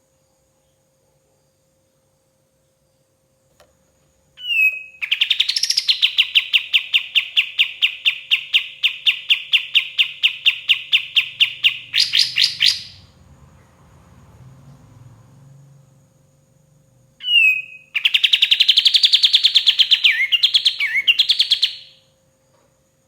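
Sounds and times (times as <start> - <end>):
songbird whistling and trilling: 4.4 - 13.1, 17.2 - 22.0.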